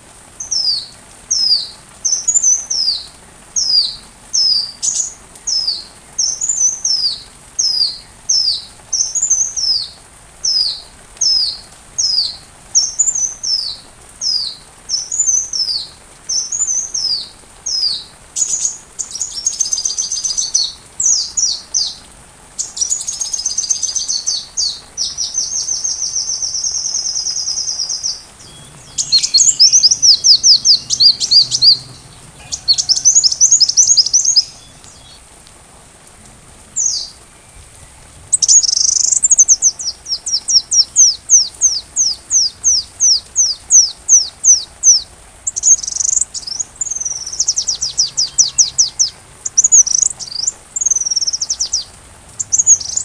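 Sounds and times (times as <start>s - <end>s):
bird trilling: 28.4s - 35.2s, 46.9s - 50.5s
bird chirping: 28.4s - 35.3s, 45.5s - 53.0s.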